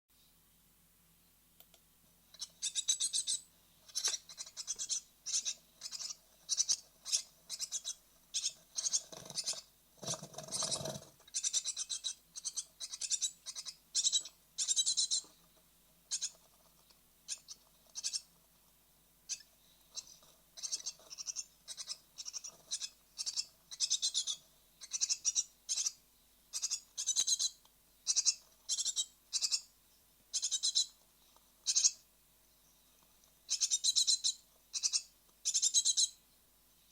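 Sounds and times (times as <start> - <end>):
nestlings begging calls: 2.4 - 15.3, 16.1 - 16.4, 17.3 - 18.3, 19.3 - 29.7, 30.3 - 31.0, 31.6 - 32.0, 33.5 - 36.2.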